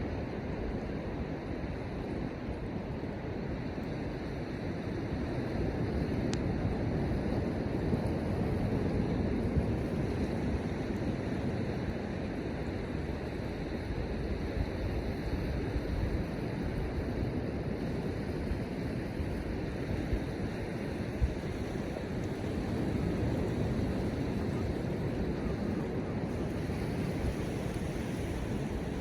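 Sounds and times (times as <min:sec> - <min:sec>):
surf on shore: 0:00.0 - 0:29.0
wind buffeting microphone: 0:13.1 - 0:29.0.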